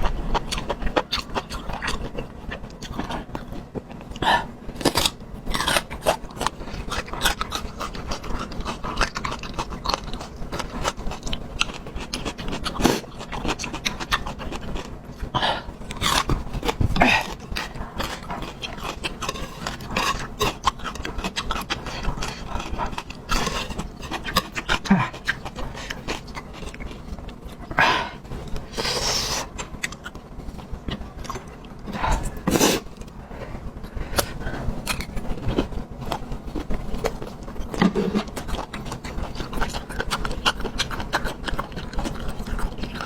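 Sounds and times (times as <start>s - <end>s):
person chewing food: 0.0s - 43.0s.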